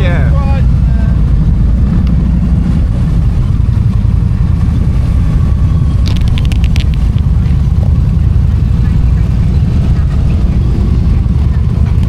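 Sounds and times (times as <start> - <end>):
motorcycle engine rumble: 0.0 - 12.0
wind noise: 0.0 - 12.0
sharp clicks: 6.0 - 7.6.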